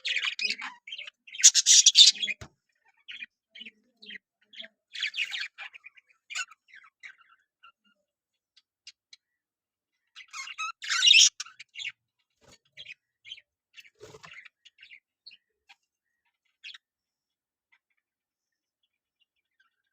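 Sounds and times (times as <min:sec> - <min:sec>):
budgerigars chirping: 0:00.0 - 0:03.3, 0:04.0 - 0:07.9, 0:10.0 - 0:12.0.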